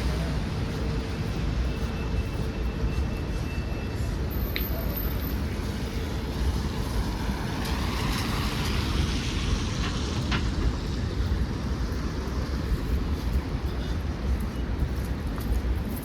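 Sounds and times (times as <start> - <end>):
traffic rumble: 0.0 - 16.0
vehicle passing: 5.8 - 12.7.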